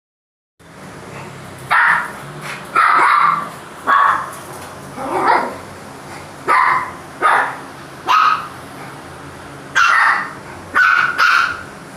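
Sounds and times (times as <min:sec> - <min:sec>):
puppy barking: 0:01.6 - 0:04.4, 0:05.0 - 0:05.6, 0:06.4 - 0:08.6, 0:09.8 - 0:11.8.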